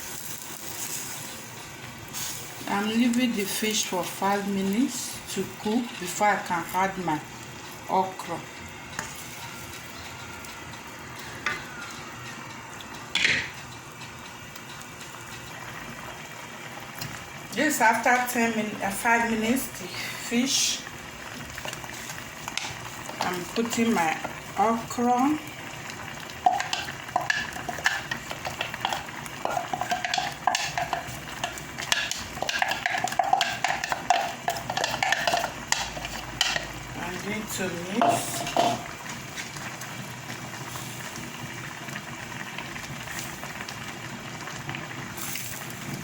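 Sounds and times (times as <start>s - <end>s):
pot simmering and bubbling: 0.0s - 46.0s
cookware clatter: 13.1s - 13.7s, 38.0s - 38.9s.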